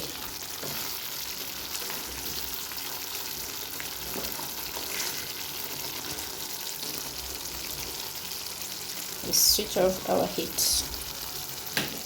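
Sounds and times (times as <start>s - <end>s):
curry simmering in a pan: 0.0s - 12.0s.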